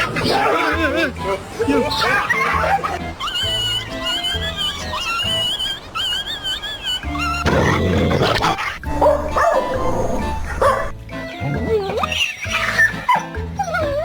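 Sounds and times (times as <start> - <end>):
music: 0.0 - 14.0
dog barking: 2.0 - 3.0, 8.3 - 11.0.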